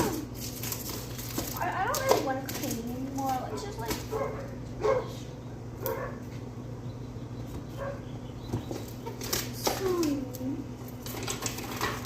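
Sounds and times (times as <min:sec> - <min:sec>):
steady low hum: 0:00.0 - 0:12.0
dog barking and whimpering: 0:03.5 - 0:06.2, 0:07.8 - 0:08.0.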